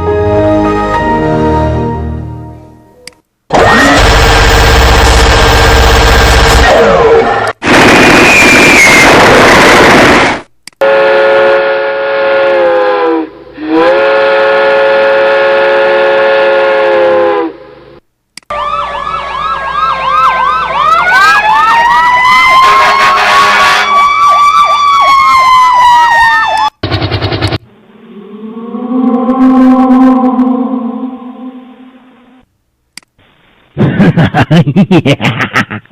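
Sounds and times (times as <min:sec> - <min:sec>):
horn blasts: 0:03.5 - 0:06.6, 0:10.8 - 0:17.8, 0:22.6 - 0:24.1
wailing siren: 0:03.5 - 0:07.5, 0:18.5 - 0:26.8, 0:27.9 - 0:32.4
burst of noise: 0:03.5 - 0:10.5
yelping siren: 0:18.5 - 0:26.8.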